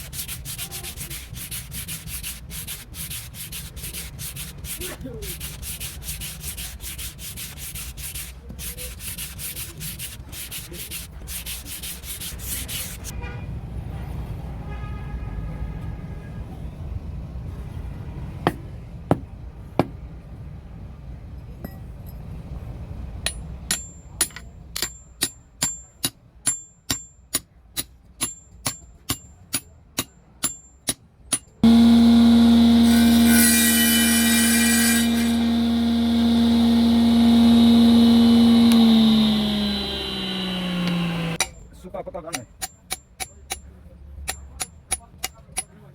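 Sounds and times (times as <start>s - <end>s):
electric workshop machine humming: 31.6s - 41.4s.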